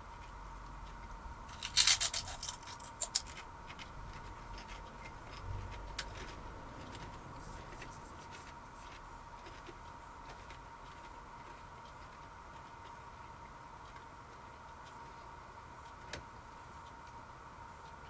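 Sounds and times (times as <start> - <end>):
faint high hum: 0.0 - 18.0
foil crisp packet crinkling: 1.5 - 3.4.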